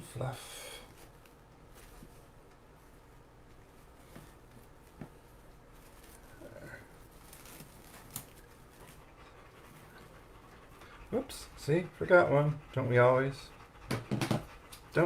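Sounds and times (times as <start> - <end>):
ribbon rustling: 2.9 - 9.0.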